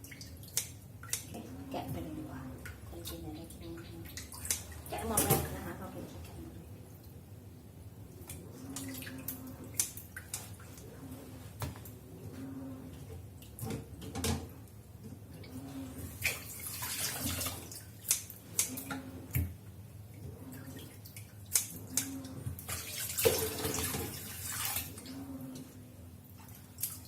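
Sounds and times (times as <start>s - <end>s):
tap water running and splashing: 16.1s - 19.6s, 20.7s - 25.1s.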